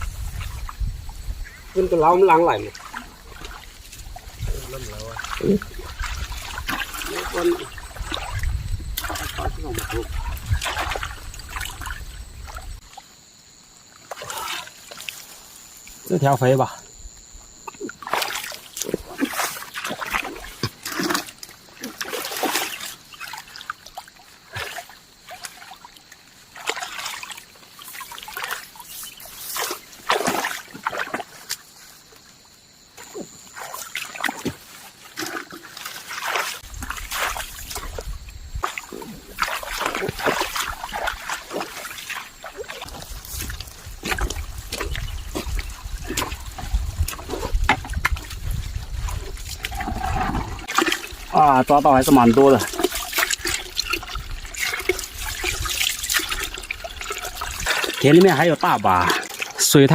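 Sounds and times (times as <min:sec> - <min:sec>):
shallow water splashing: 0:00.0 - 0:13.2, 0:17.5 - 0:59.9.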